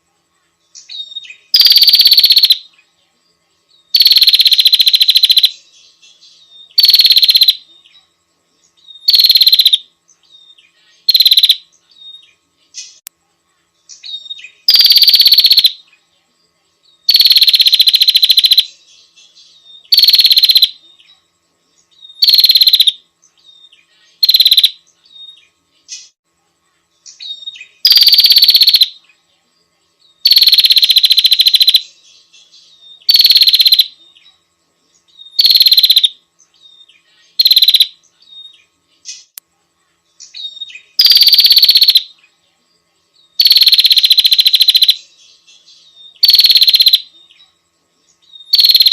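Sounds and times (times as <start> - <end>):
bird buzzy rattling trills: 0.8 - 2.6, 3.9 - 7.7, 8.6 - 13.0, 13.9 - 15.9, 17.0 - 20.8, 21.6 - 26.2, 27.0 - 29.1, 30.2 - 39.4, 40.2 - 42.1, 43.3 - 47.4, 48.0 - 48.9.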